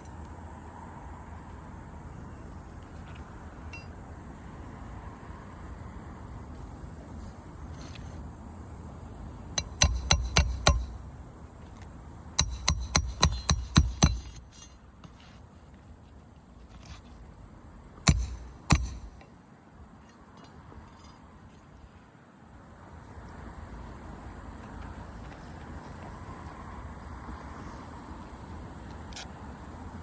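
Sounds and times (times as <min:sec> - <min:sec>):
hammer striking roofing nails: 0:09.6 - 0:11.0, 0:12.4 - 0:14.4, 0:18.0 - 0:19.2.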